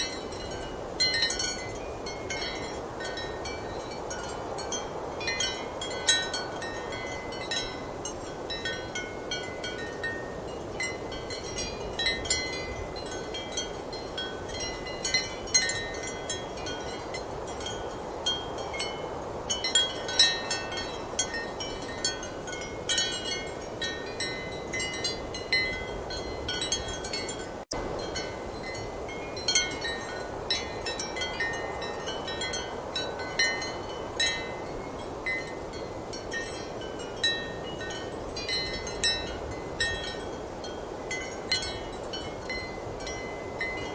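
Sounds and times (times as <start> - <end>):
ceramic wind chimes clinking: 0.0 - 43.9
strong wind: 0.0 - 43.9.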